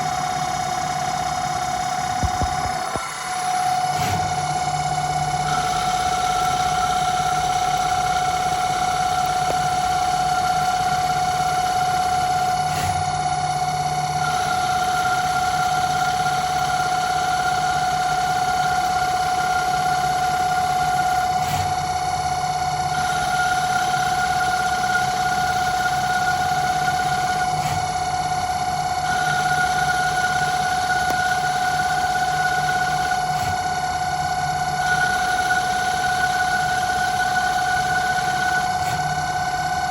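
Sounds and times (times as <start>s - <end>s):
lathe motor whine: 0.0s - 39.9s.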